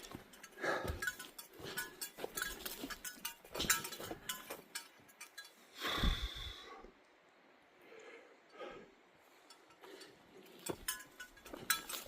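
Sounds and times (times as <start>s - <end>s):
footsteps on forest trail: 0.0s - 5.4s, 9.7s - 12.0s
metallic clinks of gear: 0.0s - 5.8s, 9.4s - 12.0s.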